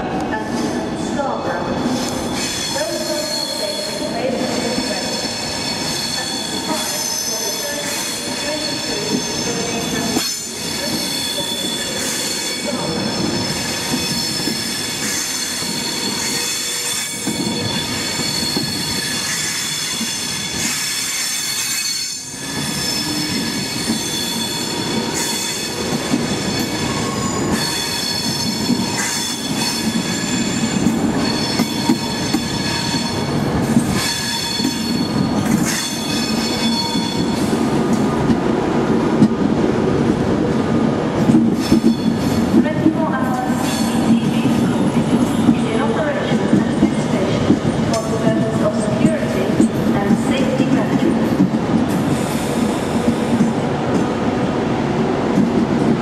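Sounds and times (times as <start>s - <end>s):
train carriages rumbling on rails: 0.0s - 56.0s
train wheels squealing: 1.8s - 37.6s, 41.5s - 42.6s, 43.3s - 45.5s.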